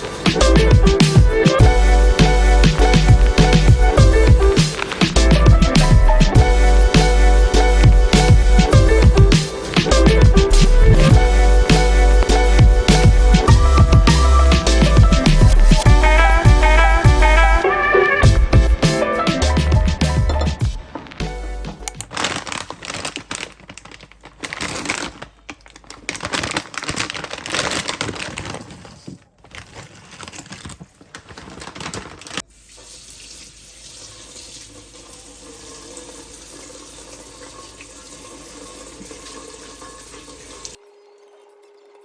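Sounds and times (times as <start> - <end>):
tap water running into sink: 32.4 - 42.0.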